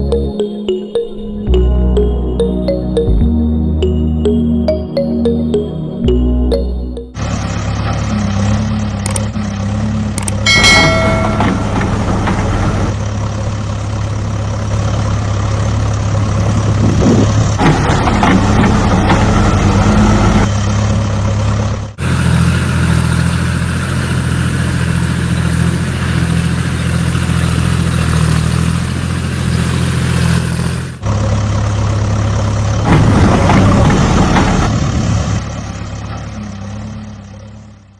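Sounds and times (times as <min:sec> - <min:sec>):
heavy diesel engine running: 0:01.5 - 0:37.9
short tone: 0:10.4 - 0:12.8.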